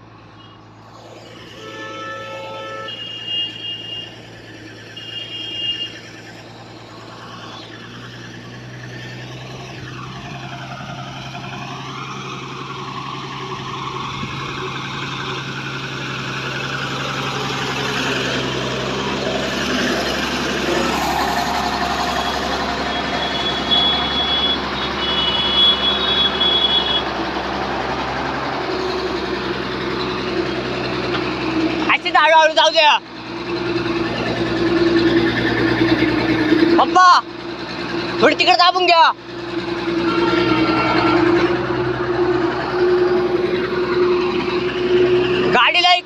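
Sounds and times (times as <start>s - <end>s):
truck engine running: 0.0s - 46.0s
short horn-like tone: 1.5s - 4.1s, 40.0s - 41.6s.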